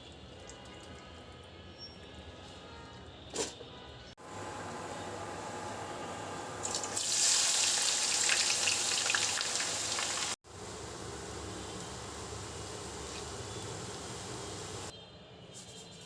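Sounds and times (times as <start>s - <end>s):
water running from tap: 6.6s - 10.4s.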